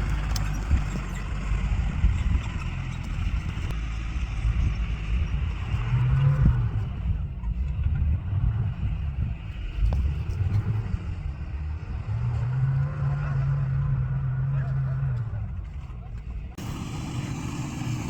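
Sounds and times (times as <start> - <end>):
vehicle engine running: 0.0 - 18.0
engine revving: 7.8 - 15.6, 16.6 - 18.0.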